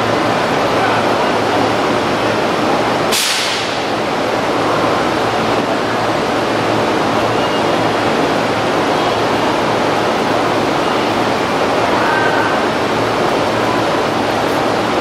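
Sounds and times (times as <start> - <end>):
train station noise: 0.0 - 15.0
air hiss burst: 3.1 - 3.8.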